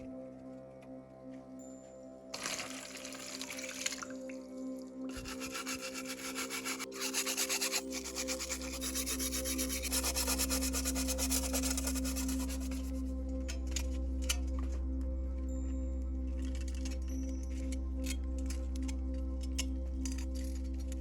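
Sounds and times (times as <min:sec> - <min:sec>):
music with steady held tones: 0:00.0 - 0:21.0
abrasive sanding strokes: 0:05.1 - 0:13.0.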